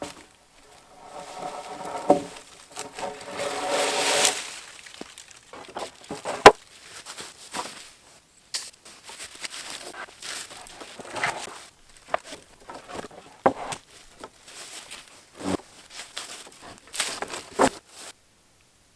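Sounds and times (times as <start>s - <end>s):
wood boards scraping with squeal: 0.0s - 4.7s.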